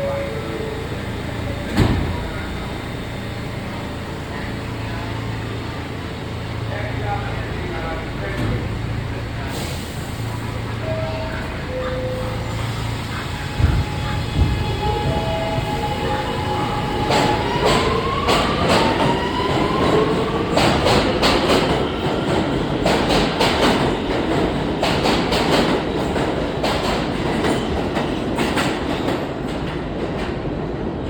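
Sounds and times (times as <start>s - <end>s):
train running rumble: 0.0s - 31.0s.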